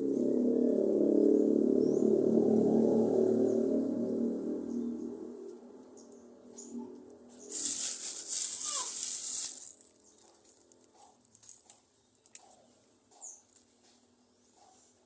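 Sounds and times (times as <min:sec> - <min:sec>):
pigeon wingbeats rustling: 0:07.5 - 0:10.6.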